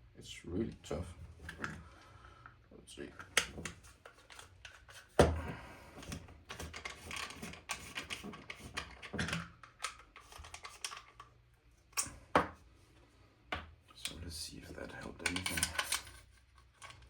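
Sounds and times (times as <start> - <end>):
small plastic parts clicking: 15.2 - 17.0.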